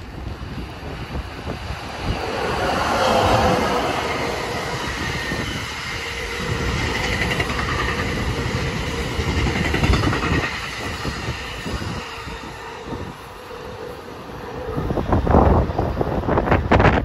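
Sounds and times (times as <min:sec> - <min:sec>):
train wheels rumbling on rail: 0:00.0 - 0:17.0
wheels clacking over track: 0:02.4 - 0:11.1.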